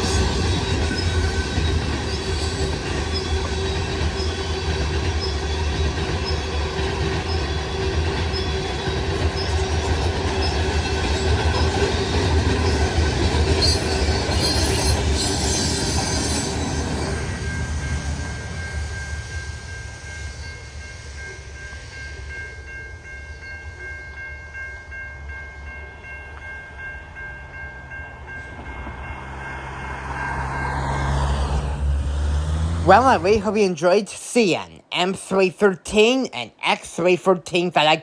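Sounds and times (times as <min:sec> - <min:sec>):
freight cars rolling on rails: 0:00.0 - 0:22.3
high squealing of train wheels: 0:00.0 - 0:32.6.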